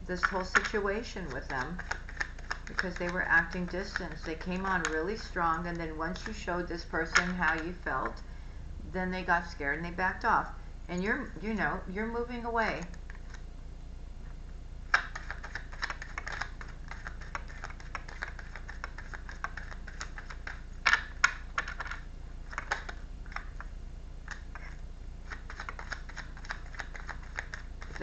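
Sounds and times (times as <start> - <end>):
rapid light clicking and tapping: 0.2 - 6.5, 14.9 - 28.0.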